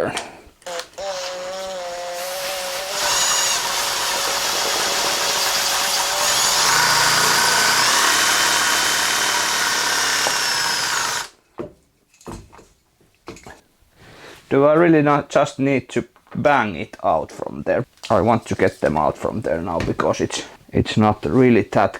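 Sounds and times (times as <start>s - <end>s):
handheld power tool running: 0.6s - 11.4s.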